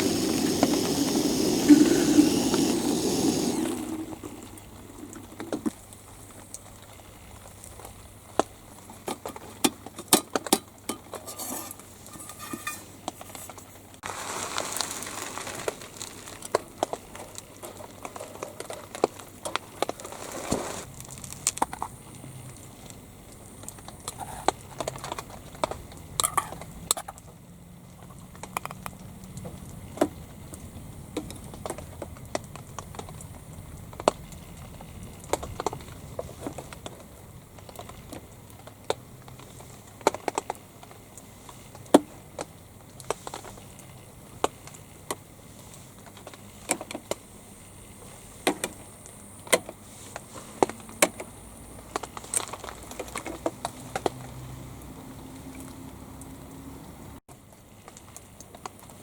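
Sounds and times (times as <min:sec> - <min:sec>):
steady stove hiss: 0:00.0 - 0:18.2, 0:19.1 - 0:20.9
utensils clinking on cookware: 0:10.2 - 0:12.9.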